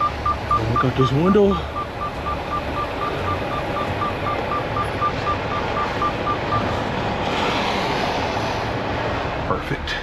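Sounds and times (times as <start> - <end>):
warning chime beeping rapidly: 0.0 - 6.6
steady rushing noise: 5.3 - 10.0.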